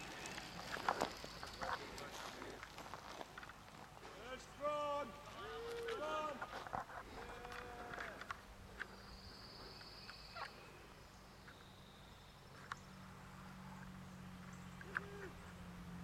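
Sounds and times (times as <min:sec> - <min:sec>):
songbird trills: 0:08.7 - 0:15.6.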